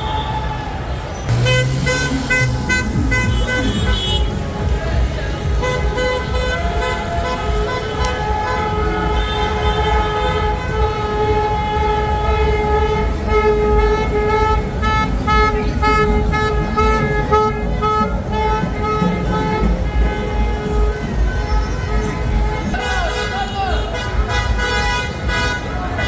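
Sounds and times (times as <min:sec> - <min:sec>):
traffic rumble: 0:00.0 - 0:26.0
horn beeping short blasts: 0:01.3 - 0:04.4
car horns honking: 0:01.3 - 0:26.0.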